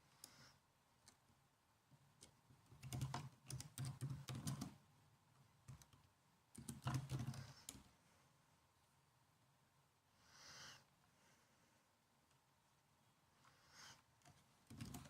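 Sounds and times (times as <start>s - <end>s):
laptop keyboard typing: 2.2s - 4.8s, 5.6s - 7.9s, 14.6s - 15.0s.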